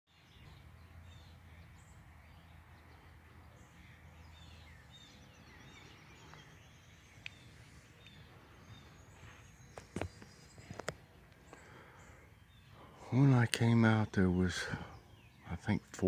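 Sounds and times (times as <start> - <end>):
small songbirds chirping: 0.1 - 16.0.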